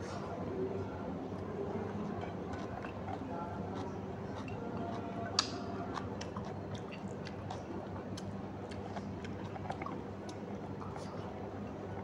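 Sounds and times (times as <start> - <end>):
person chewing food: 2.5 - 10.4.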